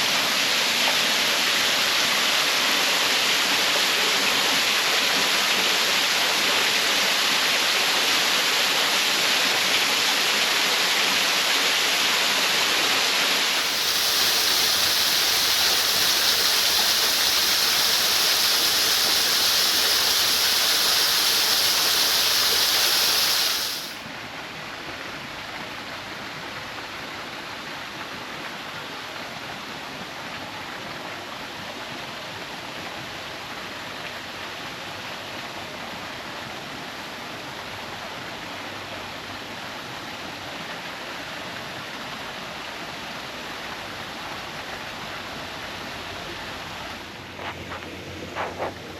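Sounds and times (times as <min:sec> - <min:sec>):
waterfall roaring: 0:00.0 - 0:24.1.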